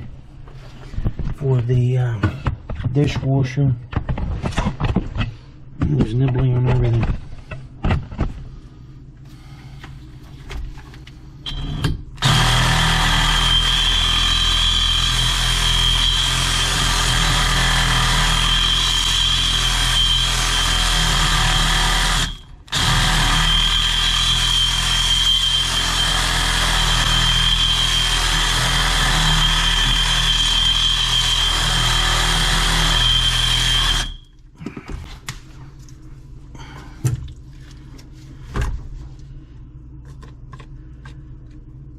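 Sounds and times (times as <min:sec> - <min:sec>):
power tool whining: 0:11.5 - 0:34.2.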